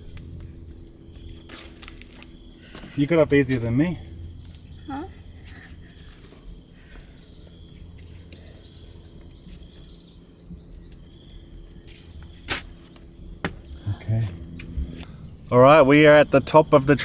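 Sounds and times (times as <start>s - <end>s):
insects chorus: 0.0s - 17.0s
low rumble: 13.6s - 17.0s.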